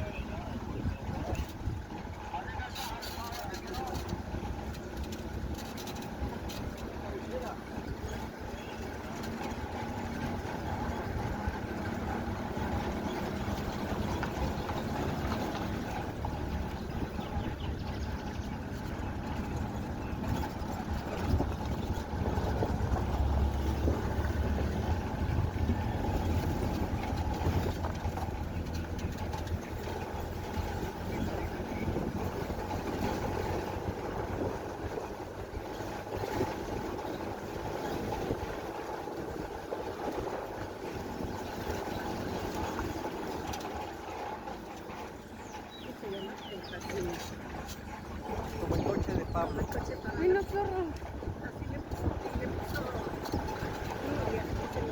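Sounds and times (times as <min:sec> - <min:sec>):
vehicle engine and road rumble: 0:00.0 - 0:54.9.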